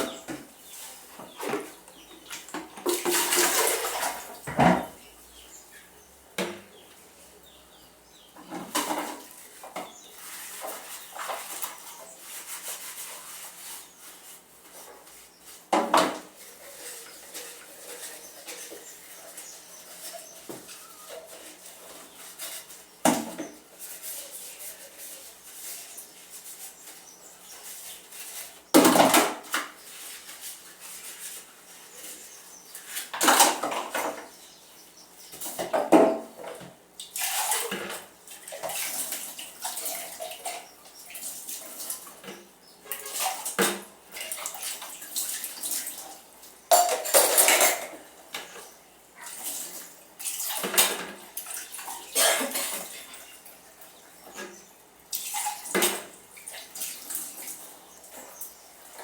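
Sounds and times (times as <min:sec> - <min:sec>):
dishes and cutlery clinking: 0:01.3 - 0:05.0, 0:46.7 - 0:48.6, 0:51.9 - 0:53.2.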